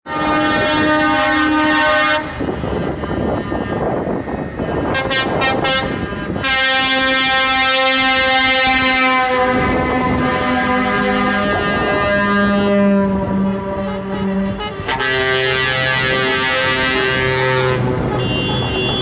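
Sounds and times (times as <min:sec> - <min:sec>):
engine and traffic noise: 0:00.0 - 0:19.0
truck air horn blasts: 0:00.1 - 0:03.9, 0:04.6 - 0:19.0
short horn toots: 0:05.0 - 0:19.0.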